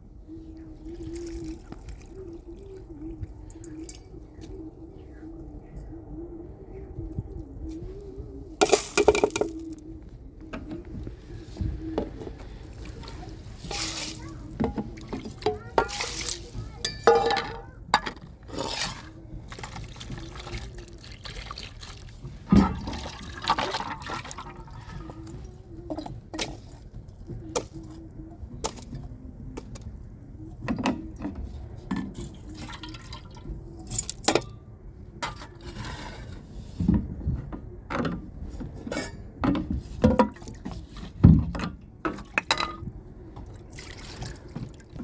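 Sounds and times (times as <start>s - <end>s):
water splashing and pouring: 12.6s - 17.2s, 18.6s - 25.0s, 43.7s - 45.0s
knocks and clinks: 16.9s - 18.2s.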